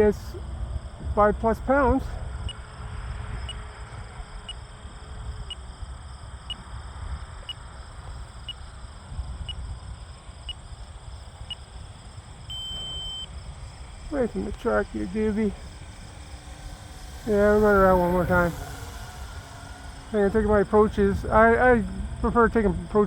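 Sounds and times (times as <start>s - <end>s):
wind rumble on microphone: 0.0s - 23.0s
alarm beeping: 4.4s - 4.7s, 12.5s - 13.4s.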